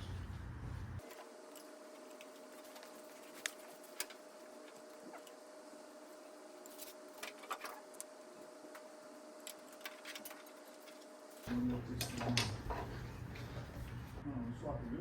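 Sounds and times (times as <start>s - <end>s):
small parts clicking and scraping: 9.4s - 11.2s.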